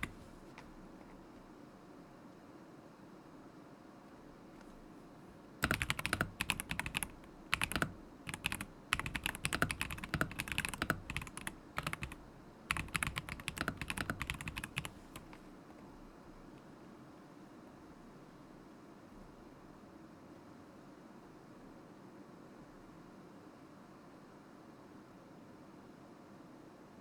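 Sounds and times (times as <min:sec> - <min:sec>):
mechanical keyboard typing: 0:00.0 - 0:00.7, 0:05.6 - 0:15.4.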